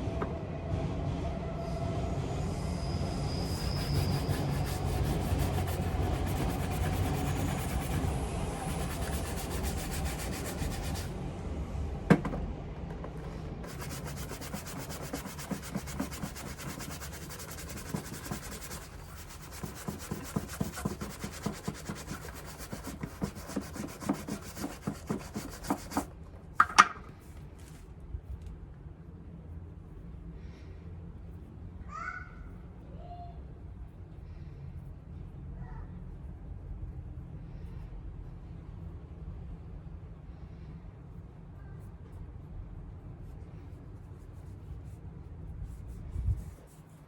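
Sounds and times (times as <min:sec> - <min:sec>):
shoe leather being rubbed: 0:03.4 - 0:11.1, 0:13.6 - 0:26.1.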